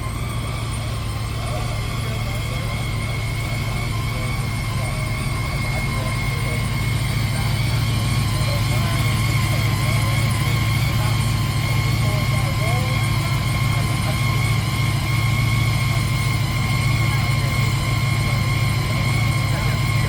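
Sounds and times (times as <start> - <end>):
high whine: 0.0 - 20.0
vehicle engine droning: 0.0 - 20.0.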